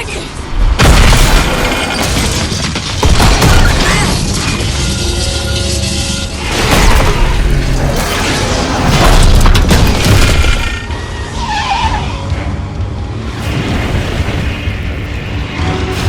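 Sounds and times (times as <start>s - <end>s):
dramatic score music: 0.0s - 16.0s
vehicle crash impacts and booms: 0.6s - 4.7s, 6.4s - 11.0s.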